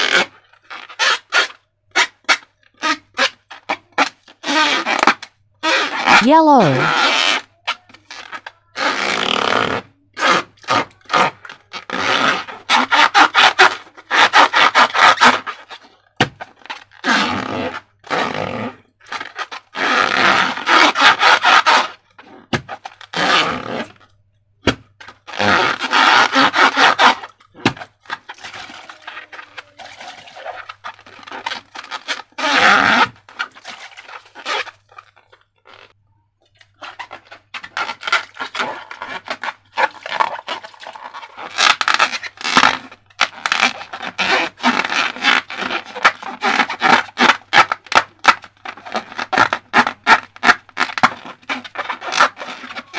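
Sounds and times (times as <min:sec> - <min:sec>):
slime squelching and crackling: 0:27.2 - 0:32.2, 0:33.3 - 0:52.9.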